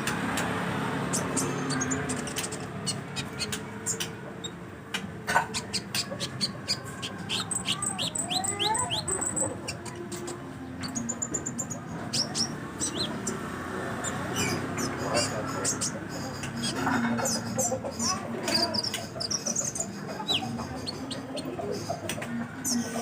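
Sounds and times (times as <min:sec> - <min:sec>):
bird singing high chirps: 0:05.6 - 0:16.9.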